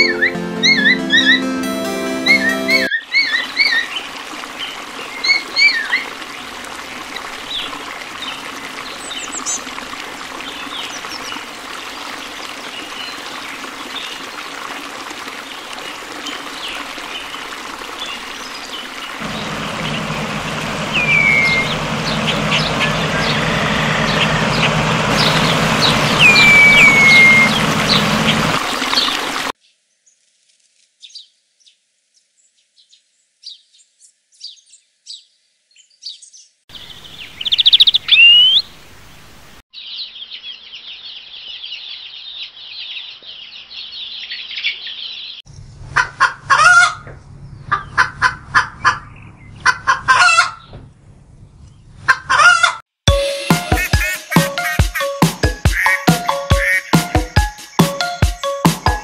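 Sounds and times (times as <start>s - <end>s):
small birds chirping: 7.5s - 9.7s, 15.9s - 30.2s, 31.0s - 45.6s, 53.7s - 59.0s
low drone: 19.2s - 29.4s
steady rushing hiss: 19.2s - 29.5s
down-slurred whistles: 20.9s - 21.8s, 22.5s - 27.8s.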